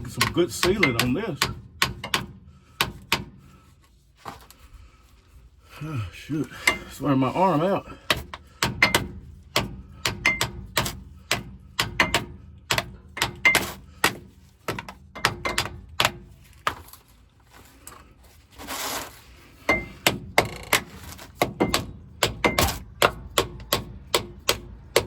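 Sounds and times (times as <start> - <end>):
metal tool striking metal: 0.1 - 3.3, 8.6 - 16.2, 19.7 - 25.0.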